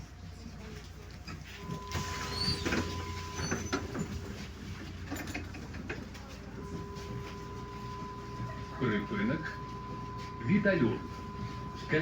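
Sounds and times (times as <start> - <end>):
bus engine drone: 1.6 - 12.0
short high squeaks: 1.8 - 4.0.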